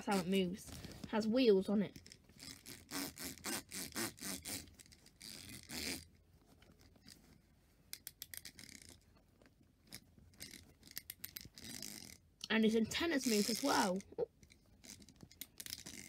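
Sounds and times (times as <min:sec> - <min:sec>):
wind-up toy clicking: 0:07.9 - 0:09.0, 0:09.9 - 0:16.0
wind-up toy scraping hiss: 0:11.5 - 0:12.2, 0:13.1 - 0:14.1.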